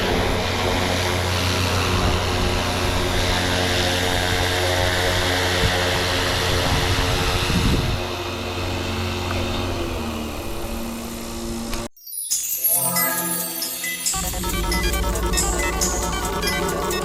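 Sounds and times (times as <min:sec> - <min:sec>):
wind noise on microphone: 0:00.0 - 0:08.3
rc helicopter rotor and motor whine: 0:00.0 - 0:11.9
music: 0:12.1 - 0:17.0.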